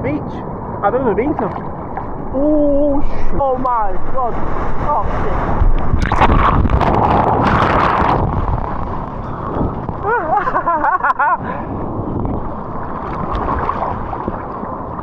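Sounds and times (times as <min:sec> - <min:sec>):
wave breaking and washing: 0:00.0 - 0:15.0
wind buffeting microphone: 0:00.0 - 0:15.0
warbling voice-like sound: 0:04.0 - 0:07.9.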